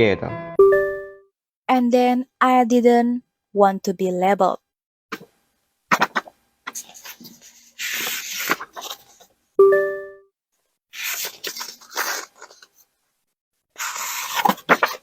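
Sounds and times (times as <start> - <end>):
rustling and tearing: 5.9 - 9.3, 10.9 - 12.9, 13.8 - 15.0.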